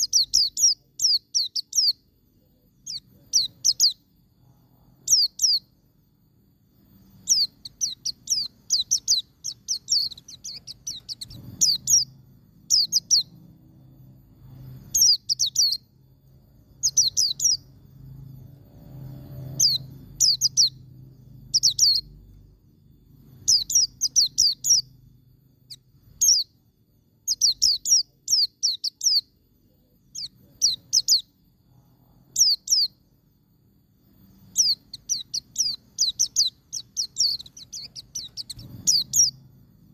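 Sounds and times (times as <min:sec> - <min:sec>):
bird twittering rapidly: 0:00.0 - 0:02.0, 0:02.8 - 0:04.1, 0:05.0 - 0:05.8, 0:07.0 - 0:16.0, 0:16.6 - 0:17.8, 0:18.5 - 0:22.2, 0:23.2 - 0:25.0, 0:25.6 - 0:26.6, 0:27.3 - 0:29.3, 0:30.0 - 0:31.4, 0:32.3 - 0:33.1, 0:34.2 - 0:39.6.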